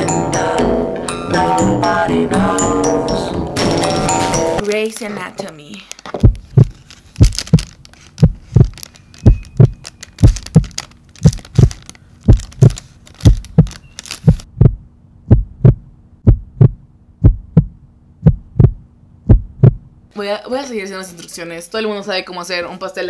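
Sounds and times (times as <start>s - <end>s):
steady low hum: 5.8s - 20.1s
heartbeat thumps: 6.2s - 20.0s.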